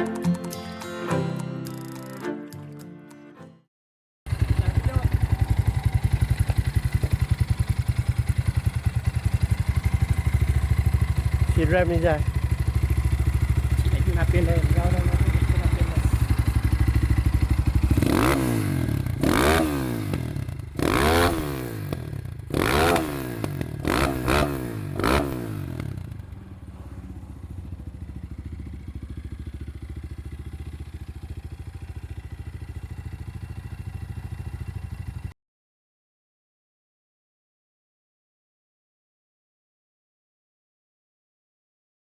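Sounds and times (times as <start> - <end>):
motorcycle engine idling and revving: 4.3 - 35.4.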